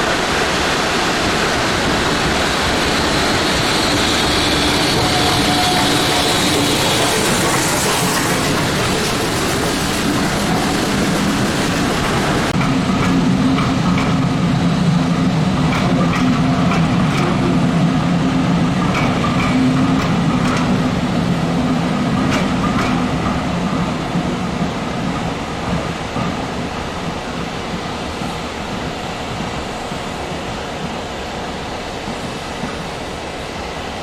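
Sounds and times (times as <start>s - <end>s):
high steam hiss: 0.0s - 34.0s
steam train rumbling: 0.0s - 34.0s
wheels and brakes squeaking: 2.9s - 12.5s.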